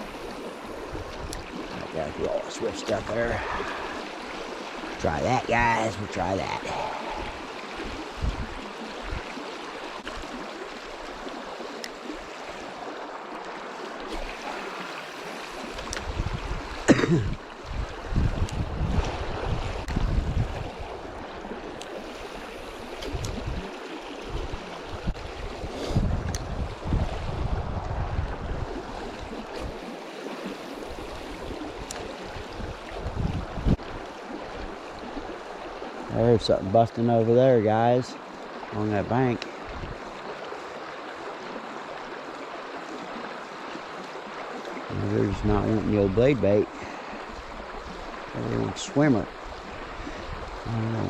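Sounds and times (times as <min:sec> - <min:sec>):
river water rushing over rocks: 0:00.0 - 0:17.7
wind buffeting microphone: 0:06.7 - 0:09.4, 0:15.5 - 0:29.9, 0:30.8 - 0:34.1, 0:39.6 - 0:40.1, 0:47.7 - 0:51.0.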